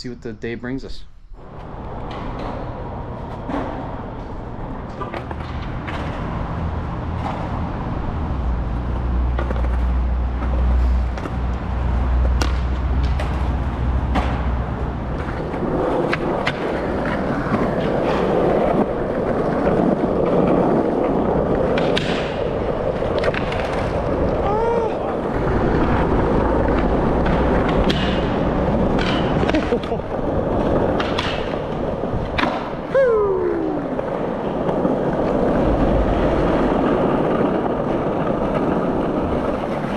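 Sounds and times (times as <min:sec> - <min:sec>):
skateboard wheels rolling on concrete: 0:00.4 - 0:39.9
low rumble: 0:01.0 - 0:19.9
skateboard clacking on ground: 0:01.5 - 0:39.9.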